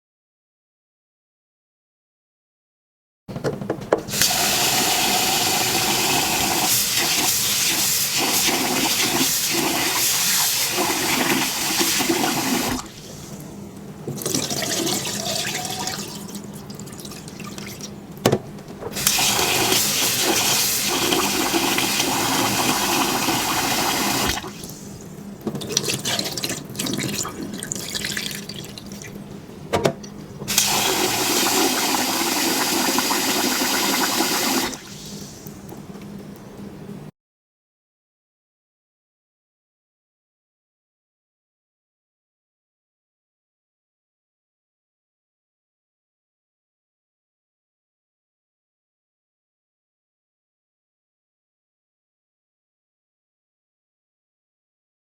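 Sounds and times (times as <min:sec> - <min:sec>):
tap water running into a bowl: 0:04.1 - 0:13.1, 0:14.2 - 0:17.9, 0:19.0 - 0:24.8, 0:25.5 - 0:29.2, 0:30.5 - 0:35.6.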